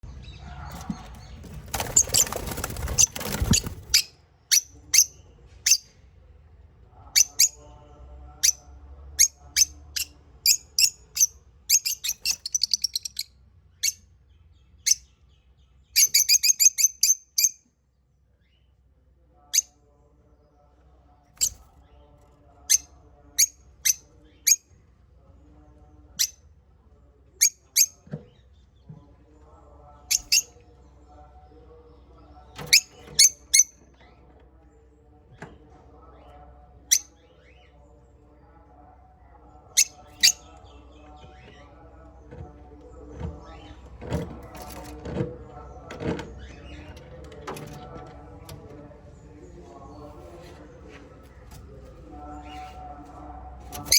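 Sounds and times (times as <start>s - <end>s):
soft low chatter: 0.0s - 53.9s
parrots chirping: 9.2s - 13.3s.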